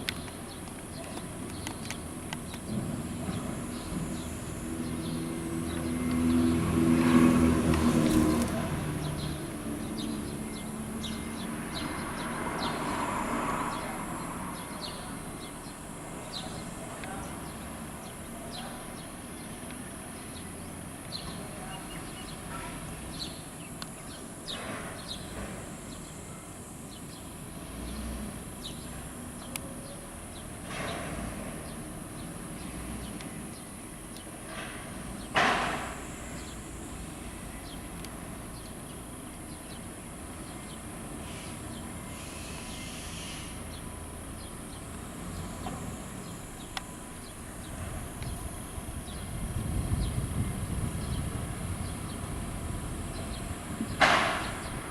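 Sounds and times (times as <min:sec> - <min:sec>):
steady high hiss: 0:35.0 - 0:54.9.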